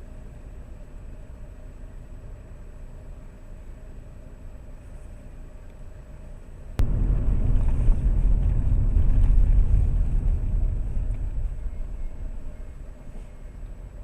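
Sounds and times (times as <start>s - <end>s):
tyres rumbling on rough surface: 6.8s - 13.2s.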